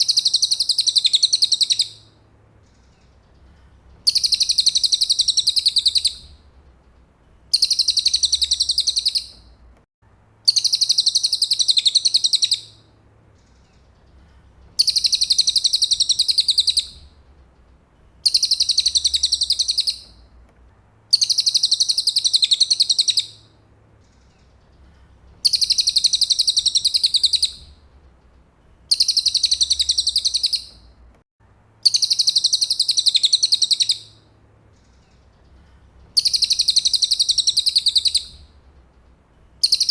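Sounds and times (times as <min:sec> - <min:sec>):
songbird trilling: 0:00.0 - 0:02.1, 0:04.0 - 0:06.4, 0:07.5 - 0:09.4, 0:10.5 - 0:12.8, 0:14.8 - 0:17.0, 0:18.2 - 0:20.2, 0:21.1 - 0:23.4, 0:25.4 - 0:27.7, 0:28.9 - 0:30.8, 0:31.8 - 0:34.2, 0:36.2 - 0:38.4, 0:39.6 - 0:39.9.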